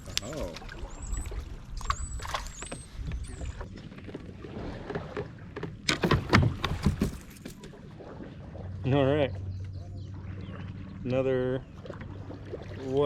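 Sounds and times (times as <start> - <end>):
water noise: 0.0 - 13.0
sharp splashes and knocks: 4.0 - 8.7.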